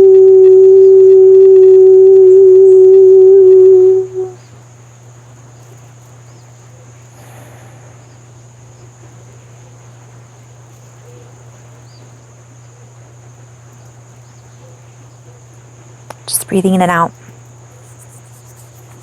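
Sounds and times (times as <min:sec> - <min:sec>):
loud held tone: 0:00.0 - 0:04.4, 0:16.1 - 0:17.1
insects droning: 0:00.0 - 0:19.0.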